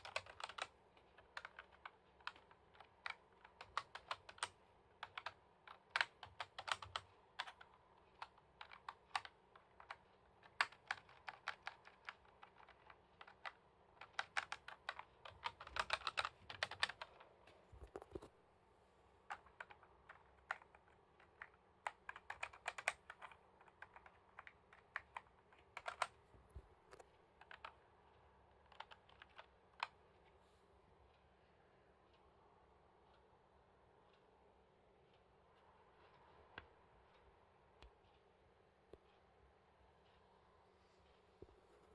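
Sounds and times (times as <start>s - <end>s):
computer keyboard typing: 0.0s - 18.3s, 19.3s - 27.9s, 28.5s - 30.0s.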